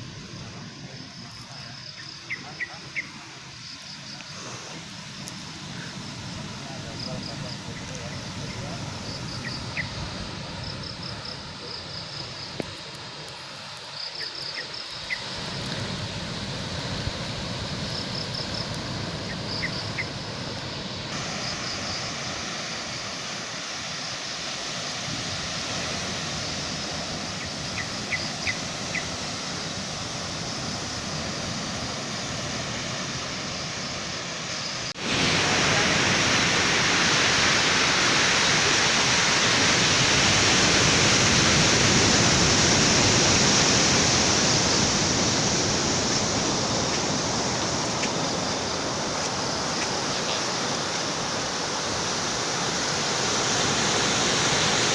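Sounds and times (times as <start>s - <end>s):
insect chirping in trills: 0.0s - 54.9s
rushing outdoor noise: 0.0s - 54.9s.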